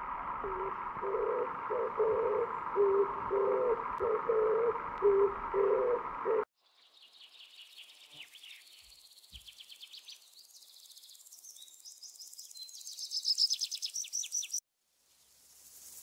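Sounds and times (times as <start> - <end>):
bird whistling trill: 11.4 - 14.6.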